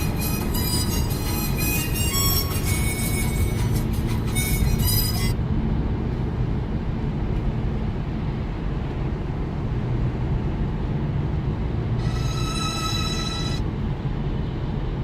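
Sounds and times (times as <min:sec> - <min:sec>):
high ringing tone: 0:00.0 - 0:05.4, 0:12.0 - 0:13.8
car engine and tyres rumbling: 0:00.0 - 0:15.0.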